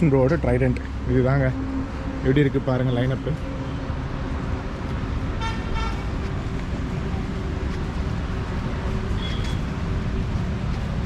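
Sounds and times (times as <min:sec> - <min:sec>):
road traffic rumble: 0:00.0 - 0:11.0
vehicle horn toots: 0:05.4 - 0:06.0.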